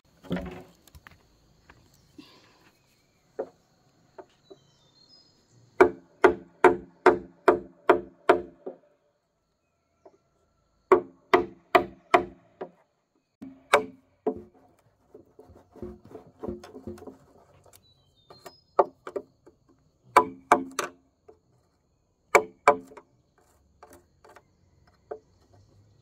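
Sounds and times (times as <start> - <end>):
chopping into wood: 5.8 - 8.8, 10.9 - 12.8, 13.4 - 14.6, 20.1 - 21.0, 22.3 - 23.0.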